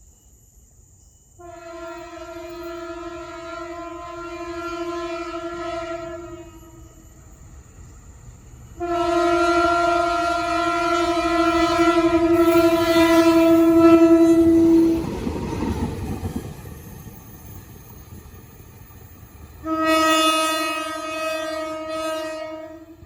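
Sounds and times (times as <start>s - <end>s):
locomotive horn blast: 1.4s - 7.0s, 8.8s - 15.1s, 19.6s - 23.0s
train wheels clattering on rails: 11.4s - 21.1s.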